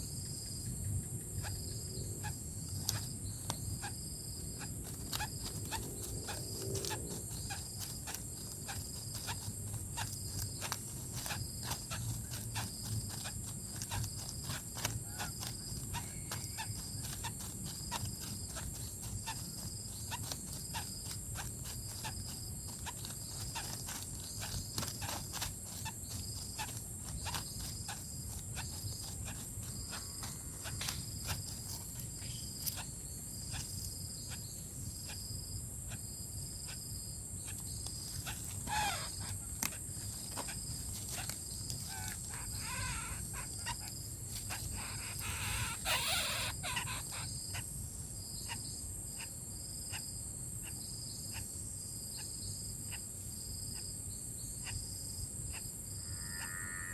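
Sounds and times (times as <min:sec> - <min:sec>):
high insect chirp: 0:00.0 - 0:56.9
insects buzzing: 0:00.0 - 0:56.9
short wavering calls: 0:01.4 - 0:35.2, 0:37.4 - 0:47.7, 0:55.5 - 0:56.9
small clicks and rustles: 0:04.8 - 0:32.8, 0:37.5 - 0:42.6.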